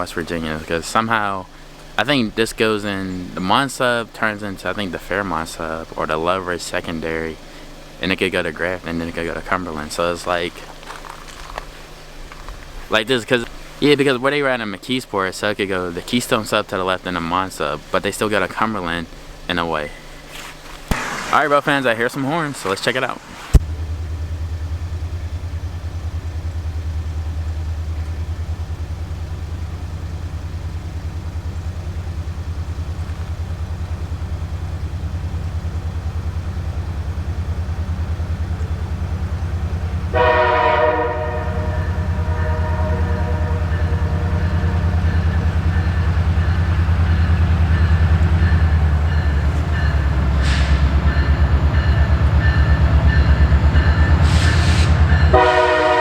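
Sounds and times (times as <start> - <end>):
locomotive engine rumble: 0.0 - 56.0
air horn blast: 40.1 - 45.3, 54.2 - 56.0.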